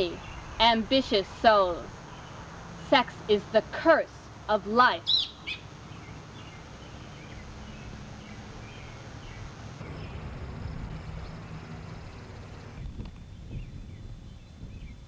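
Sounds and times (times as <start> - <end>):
low steady hum: 0.0 - 15.0
bird chirps: 5.0 - 15.0.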